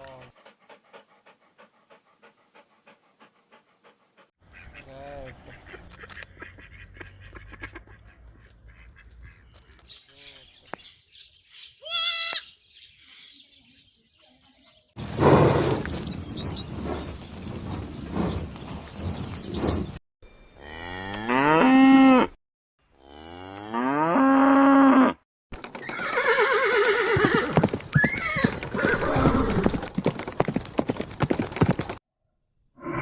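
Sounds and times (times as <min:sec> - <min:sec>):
cow mooing: 0:20.6 - 0:22.4.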